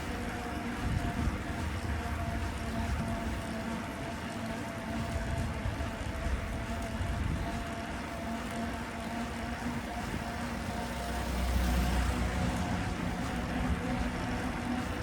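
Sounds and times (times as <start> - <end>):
road traffic engine noise: 8.2 - 15.0
low vehicle rumble: 9.4 - 15.0.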